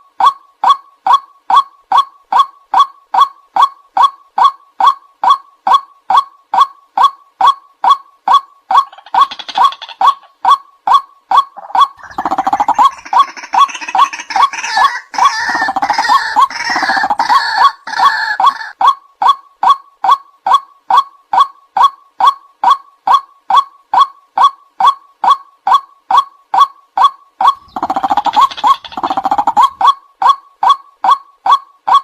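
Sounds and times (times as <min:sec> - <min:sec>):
overlapping harsh bird calls: 0:08.7 - 0:18.8, 0:27.0 - 0:29.9.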